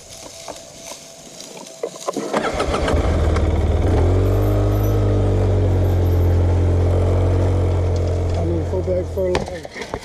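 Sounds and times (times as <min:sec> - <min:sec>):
engine starting and running: 0:02.1 - 0:09.4.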